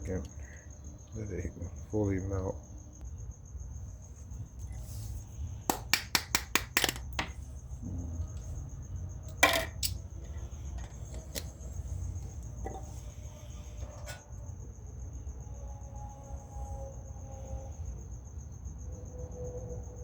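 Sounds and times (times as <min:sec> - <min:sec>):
cricket trilling: 0:00.0 - 0:20.0
metal tools clinking: 0:09.3 - 0:10.0.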